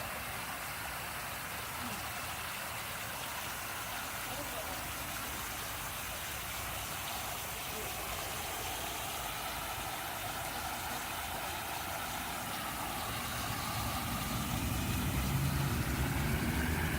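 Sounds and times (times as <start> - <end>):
fountain spraying and splashing: 0.0 - 16.9
low engine-like hum: 7.3 - 16.9.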